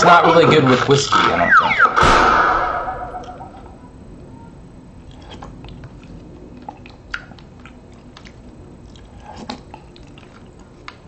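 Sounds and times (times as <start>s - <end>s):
person chewing soup: 5.0s - 11.0s.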